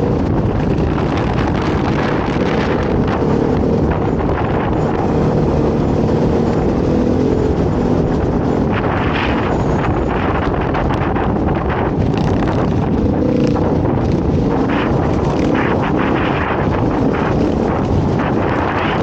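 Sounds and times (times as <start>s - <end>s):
dirt bike engine running: 0.0s - 19.0s
wind buffeting microphone: 0.0s - 19.0s.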